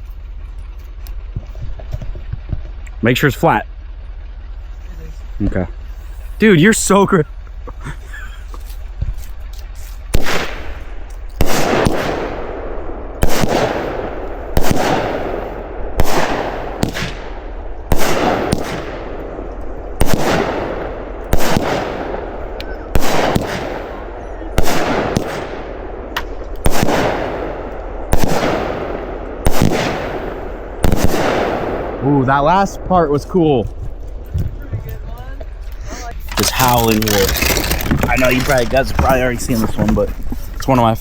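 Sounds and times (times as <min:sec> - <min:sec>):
firework cake shots: 0:07.8 - 0:12.4, 0:13.2 - 0:19.0, 0:20.0 - 0:33.8, 0:34.5 - 0:41.0.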